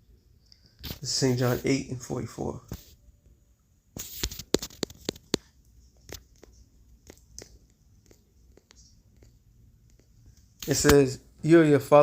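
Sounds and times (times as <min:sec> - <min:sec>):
pages flicking: 0:04.0 - 0:08.8, 0:10.6 - 0:11.1
paper rustling: 0:04.0 - 0:08.9.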